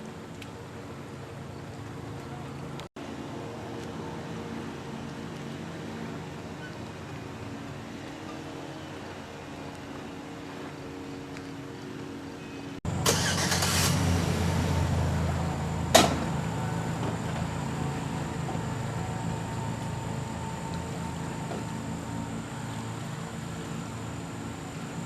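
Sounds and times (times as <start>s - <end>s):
jet ski engine: 0.0s - 25.0s
water spray burst: 13.0s - 15.2s.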